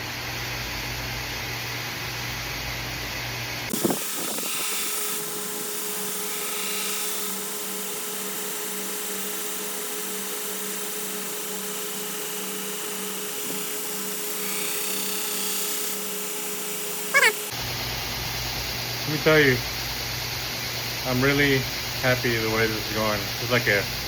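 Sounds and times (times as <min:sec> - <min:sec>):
belt grinder running: 0:03.7 - 0:17.5.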